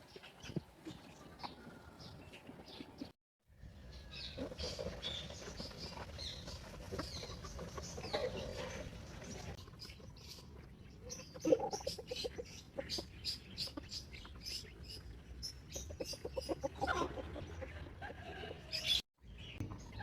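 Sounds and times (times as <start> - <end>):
chicks peeping: 4.2 - 10.5
hen clucking: 11.1 - 15.1, 15.7 - 19.0.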